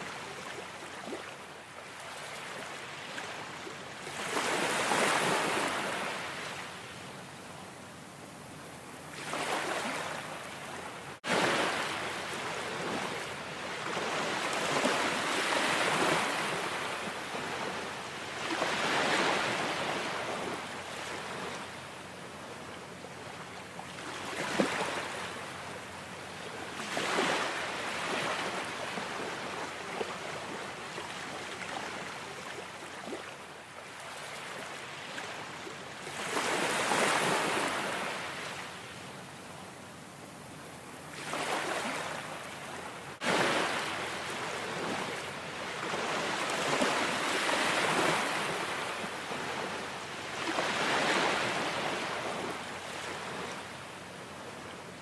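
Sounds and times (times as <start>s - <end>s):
ocean waves breaking: 2.0s - 6.7s, 9.1s - 21.7s, 26.8s - 33.3s, 41.1s - 53.6s.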